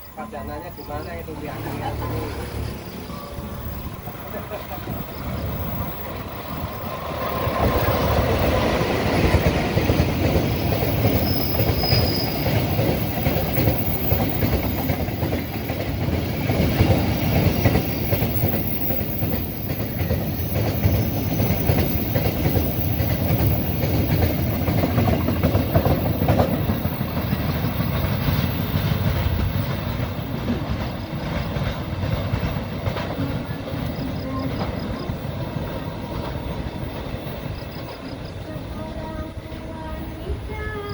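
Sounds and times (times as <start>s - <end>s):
high wheel squeal: 0.0s - 32.0s
wagon wheels rumbling over track: 0.0s - 38.4s
diesel locomotive passing: 0.0s - 40.9s.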